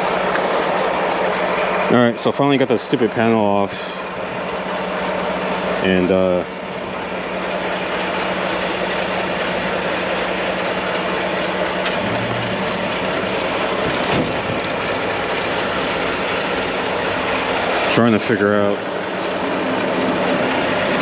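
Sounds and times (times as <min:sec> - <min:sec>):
machine humming: 0:08.9 - 0:17.9.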